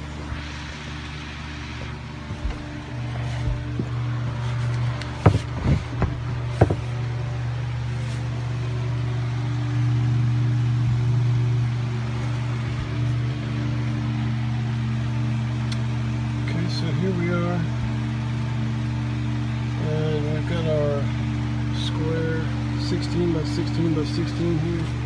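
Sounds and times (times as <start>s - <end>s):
low mechanical hum: 0.0s - 25.0s
sharp knocks: 5.2s - 7.0s.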